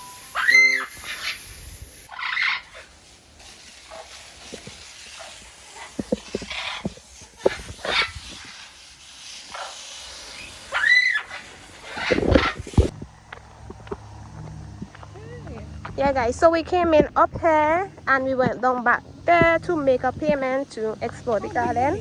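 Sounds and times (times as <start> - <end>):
parrots squawking: 0.0 - 3.0, 5.2 - 8.3, 10.4 - 12.9.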